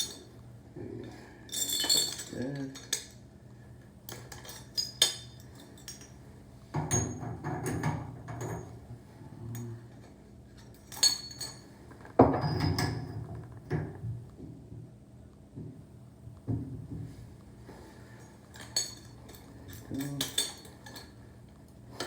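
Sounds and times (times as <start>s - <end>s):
metal tools clinking on metal: 1.5s - 3.2s, 4.1s - 6.2s, 10.6s - 11.7s, 18.2s - 21.2s.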